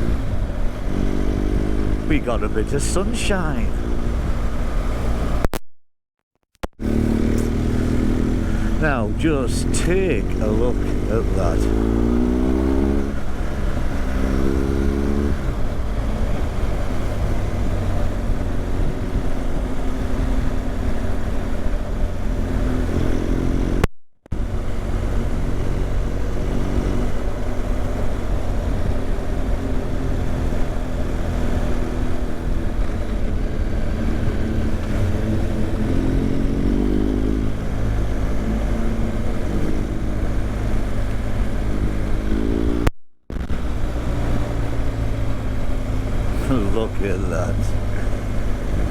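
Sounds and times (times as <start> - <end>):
motorcycle engine running: 6.8 - 23.7.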